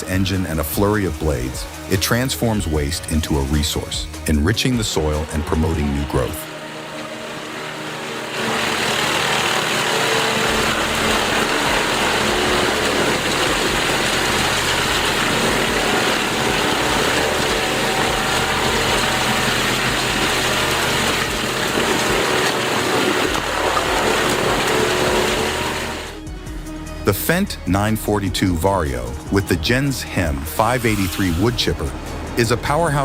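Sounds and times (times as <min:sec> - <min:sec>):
wood grinder grinding: 0:02.6 - 0:26.2, 0:30.6 - 0:32.3.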